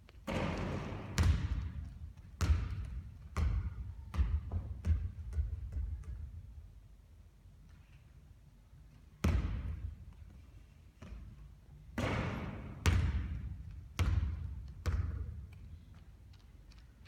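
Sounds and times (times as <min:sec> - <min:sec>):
basketball bouncing on court: 0:00.2 - 0:06.4, 0:09.2 - 0:10.0, 0:12.0 - 0:15.7.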